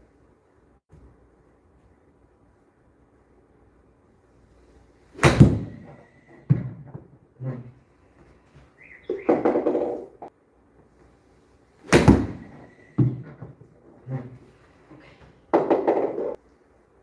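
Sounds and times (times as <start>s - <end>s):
golf club striking ball: 5.2s - 5.9s.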